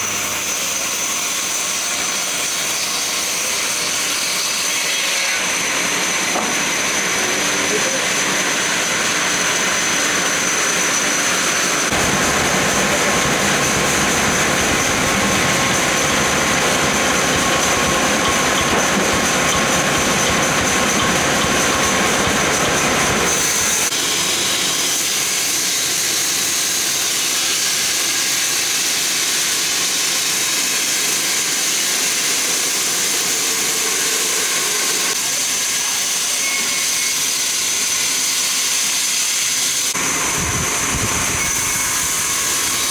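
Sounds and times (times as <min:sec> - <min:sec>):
sawmill machinery hissing: 0:00.0 - 0:42.9
high whine: 0:06.2 - 0:24.3.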